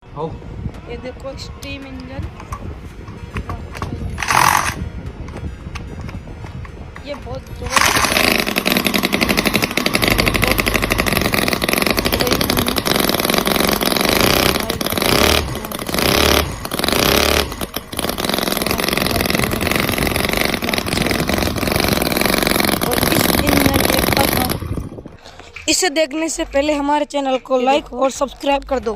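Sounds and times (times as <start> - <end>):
model engine running fast: 4.2 - 4.8, 7.7 - 25.0.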